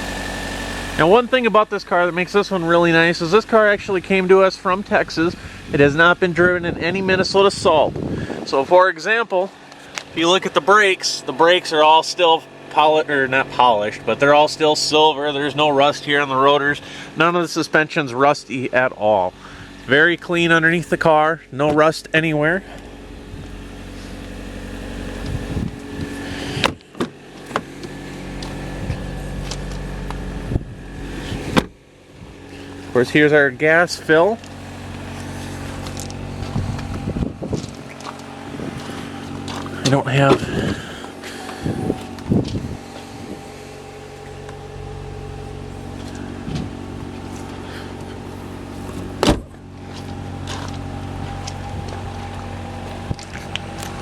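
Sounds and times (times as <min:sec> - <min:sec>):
car engine idling: 0:00.0 - 0:54.0
loud thump: 0:31.5 - 0:31.8, 0:49.2 - 0:49.6.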